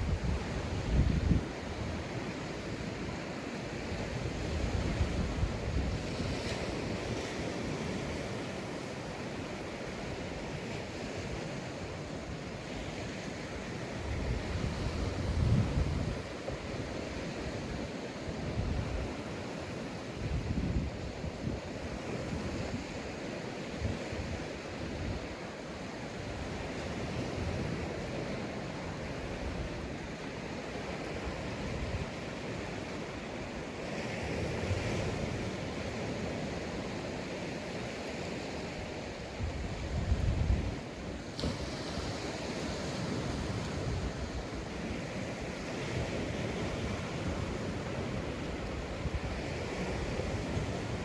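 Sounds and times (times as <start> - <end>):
wind buffeting microphone: 0.0 - 2.3, 3.8 - 8.2, 13.9 - 16.8, 38.5 - 51.0
sea waves on sandy beach: 0.0 - 51.0.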